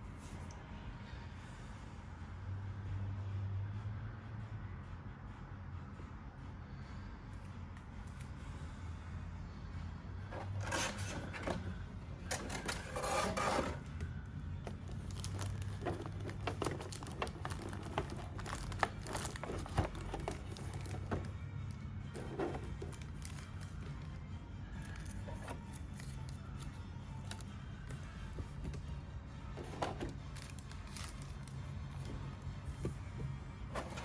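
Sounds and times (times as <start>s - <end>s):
faint background music: 0.0s - 34.0s
packaging rustling: 14.7s - 21.3s, 22.2s - 23.9s, 29.6s - 33.2s.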